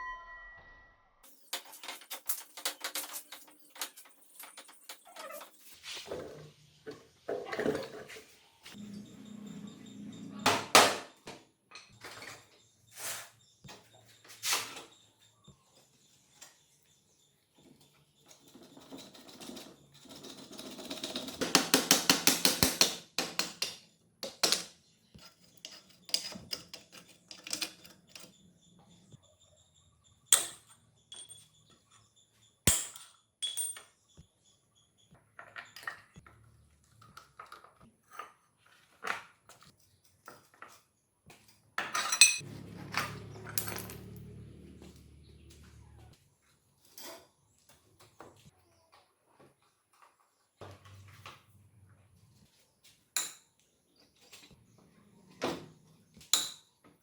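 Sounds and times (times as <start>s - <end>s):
metal tools clinking on workbench: 30.3s - 31.7s, 32.7s - 34.0s, 41.8s - 44.4s.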